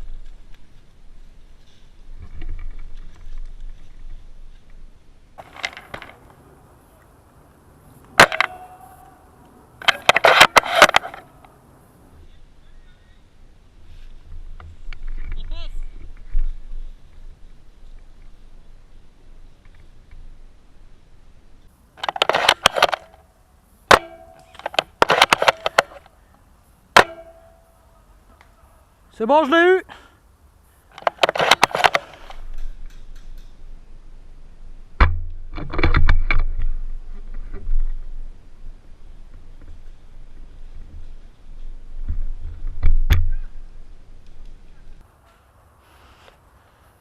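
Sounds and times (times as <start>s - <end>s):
airsoft rifle shot with spring ring: 23.9s - 26.0s, 27.0s - 27.7s
air rifle shot with metallic ring: 27.0s - 27.7s.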